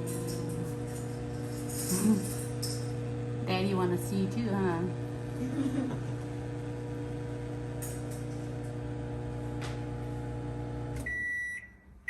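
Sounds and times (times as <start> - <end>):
microwave oven humming: 0.0 - 12.0
microwave beep: 10.8 - 12.0.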